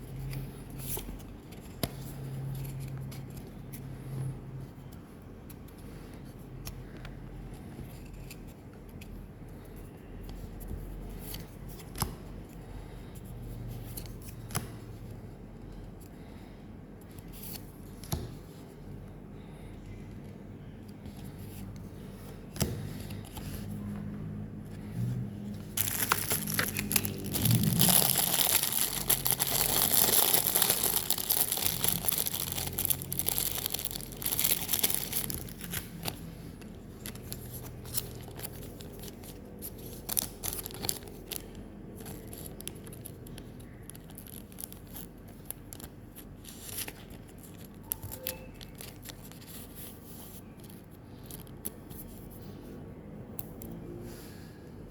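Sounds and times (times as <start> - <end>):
foil wrapper crinkling and tearing: 25.8 - 36.2, 37.0 - 47.8.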